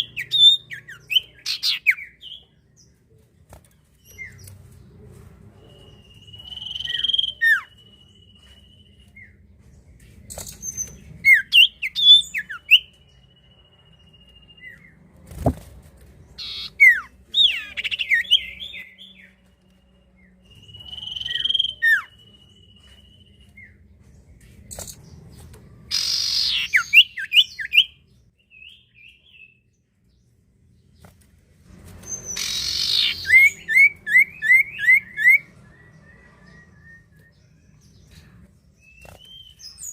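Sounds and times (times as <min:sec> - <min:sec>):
bird whistling and trilling: 0:00.0 - 0:02.4, 0:05.7 - 0:09.3, 0:10.3 - 0:12.9, 0:16.4 - 0:19.2, 0:20.5 - 0:23.8, 0:25.9 - 0:28.0, 0:32.0 - 0:37.4, 0:38.8 - 0:39.9.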